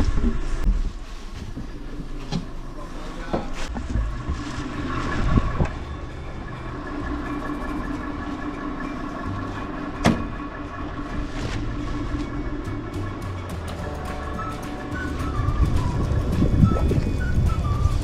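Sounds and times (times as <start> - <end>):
vehicle running hum: 0.0 - 18.0
whine tones: 0.0 - 18.0.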